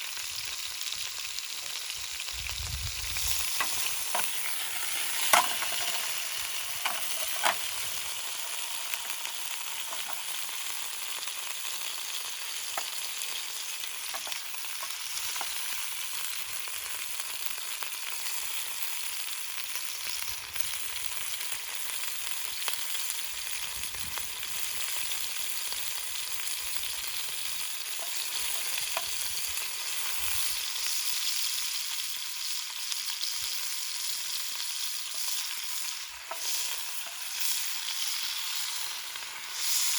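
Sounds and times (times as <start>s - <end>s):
food sizzling in a pan: 0.0s - 39.9s
campfire clicks and pops: 2.4s - 10.7s, 12.6s - 15.8s, 27.8s - 30.3s.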